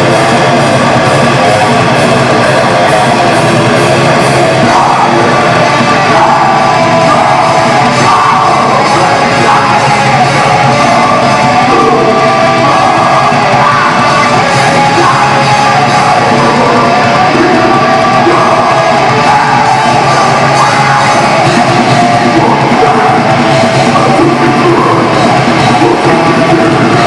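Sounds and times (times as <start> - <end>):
bass guitar: 0.0 - 27.0
distorted guitars: 0.0 - 27.0
drums: 0.0 - 27.0
growled yelled vocal: 1.2 - 27.0.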